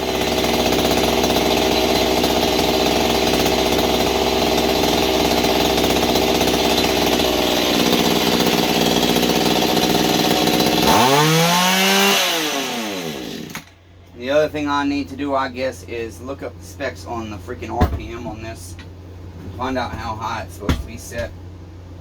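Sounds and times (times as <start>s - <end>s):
small tiller engine running: 0.0s - 13.7s.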